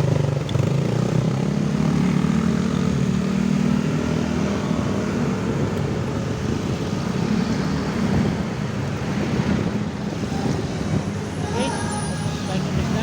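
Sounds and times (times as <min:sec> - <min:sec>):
road traffic noise: 0:00.0 - 0:13.0
wind on microphone: 0:04.5 - 0:13.0.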